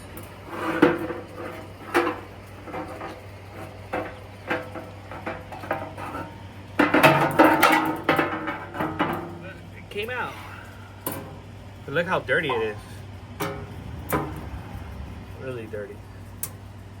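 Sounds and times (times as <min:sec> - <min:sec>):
metal clinks and knocks: 0:00.0 - 0:09.6
metal clattering: 0:00.0 - 0:16.7.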